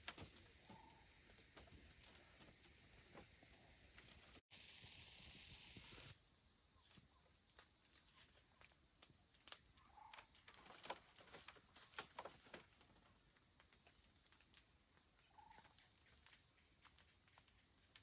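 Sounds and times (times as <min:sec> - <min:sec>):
hiss: 0:04.4 - 0:06.2.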